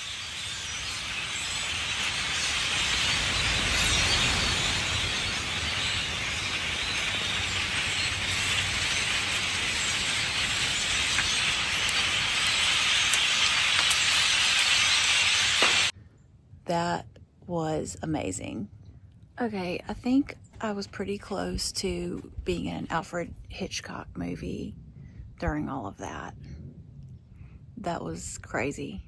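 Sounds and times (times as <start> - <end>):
flock of grackles calling: 0.0 - 15.9.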